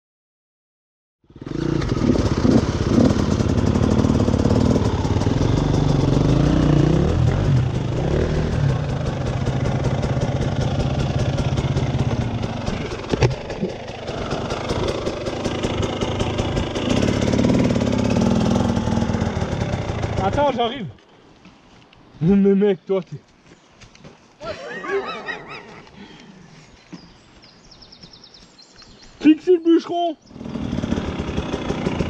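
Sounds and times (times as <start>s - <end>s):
dirt bike engine revving: 1.3s - 20.5s, 30.2s - 32.0s.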